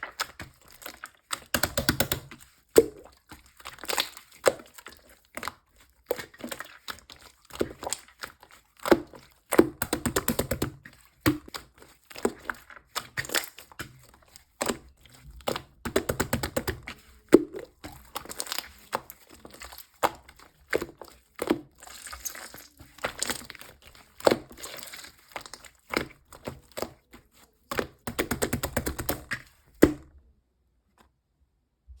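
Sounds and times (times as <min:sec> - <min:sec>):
slime squeezed popping and crackling: 0:21.7 - 0:25.8.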